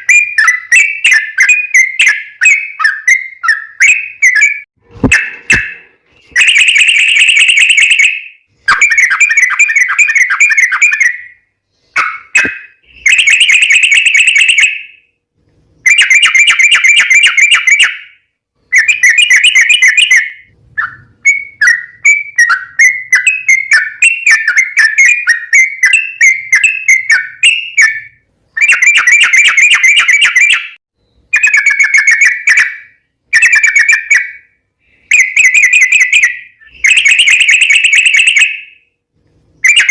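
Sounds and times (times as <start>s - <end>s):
bird singing bubbly chattering song: 6.4s - 11.4s, 18.7s - 34.5s.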